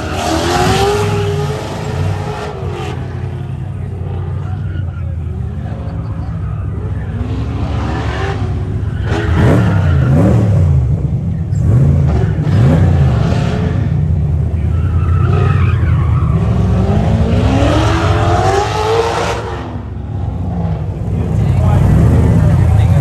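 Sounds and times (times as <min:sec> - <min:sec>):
tyres squealing: 0:00.0 - 0:05.1
car engine revving: 0:00.0 - 0:23.0.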